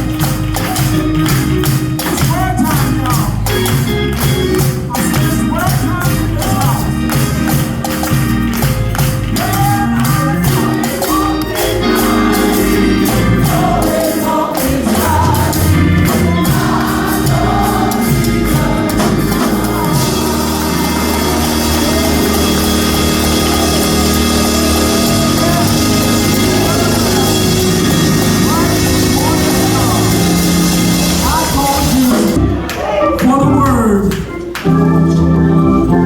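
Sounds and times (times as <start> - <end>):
percussive beat: 0.0 - 34.8
choir singing gospel music: 0.0 - 36.0.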